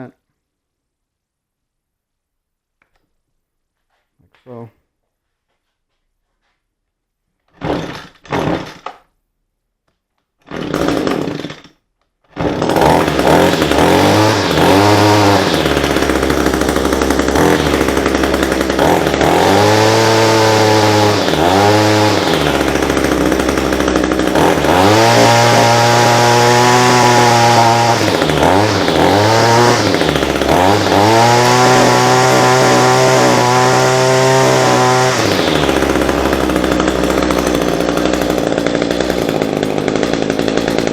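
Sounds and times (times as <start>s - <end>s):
string trimmer engine revving: 7.6s - 8.8s, 10.5s - 11.7s, 12.3s - 40.9s.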